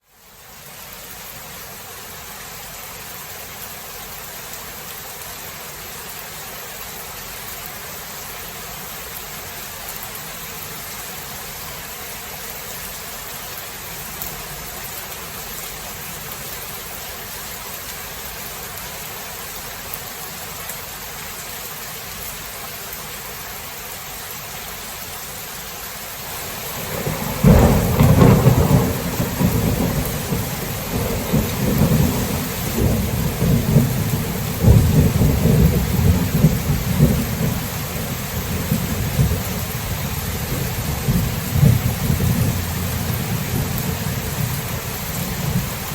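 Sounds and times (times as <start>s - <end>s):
steady rain hissing: 0.0s - 45.9s
thunder clap and rumble: 26.4s - 45.9s.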